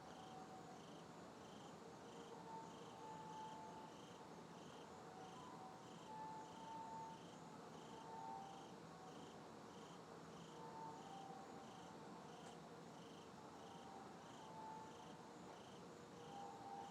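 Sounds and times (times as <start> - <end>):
insect chirping: 0.1 - 16.9.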